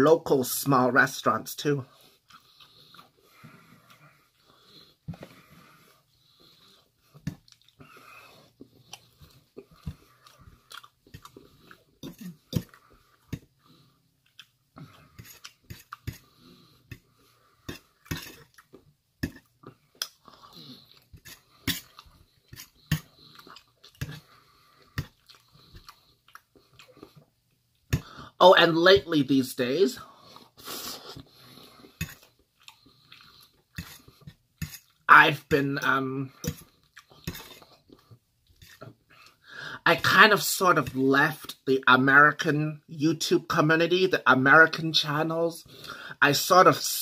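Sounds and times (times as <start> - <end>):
person chewing food: 1.9 - 28.3, 30.0 - 35.1, 36.2 - 39.5.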